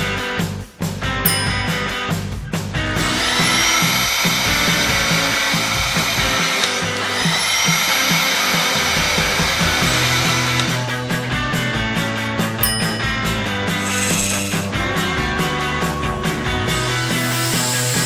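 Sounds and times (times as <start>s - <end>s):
motor whirring spinning up: 16.9s - 18.0s.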